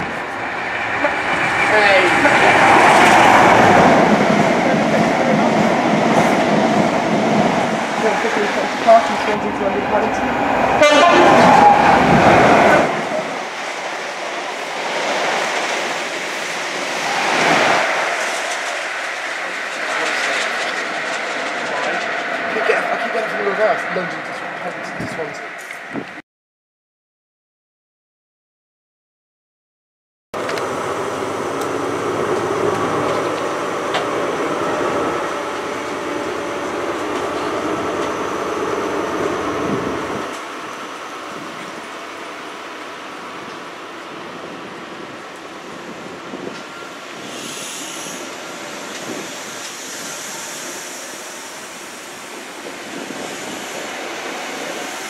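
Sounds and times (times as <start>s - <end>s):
high-speed train passing: 0.0s - 26.2s, 30.4s - 55.0s
wheels clattering over rail joints: 17.8s - 25.4s.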